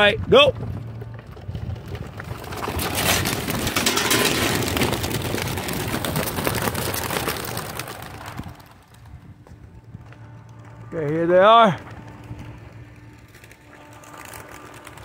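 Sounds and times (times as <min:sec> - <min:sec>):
pigeon wingbeats clattering: 0:00.9 - 0:09.6.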